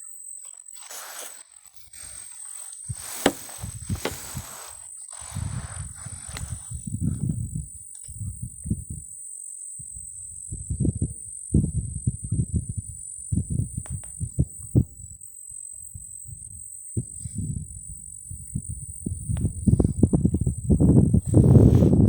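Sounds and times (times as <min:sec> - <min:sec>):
low rustles and thumps: 0:02.9 - 0:06.6.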